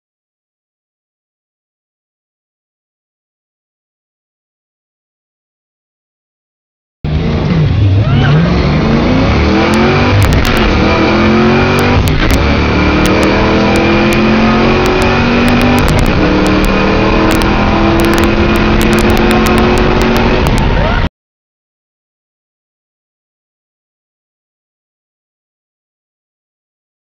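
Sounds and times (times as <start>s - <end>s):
car engine at full throttle: 7.1s - 21.1s.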